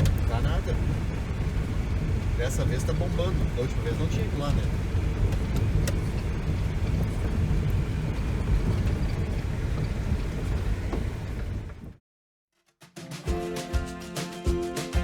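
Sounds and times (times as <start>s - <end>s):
engine and road noise rumble: 0.0s - 12.0s.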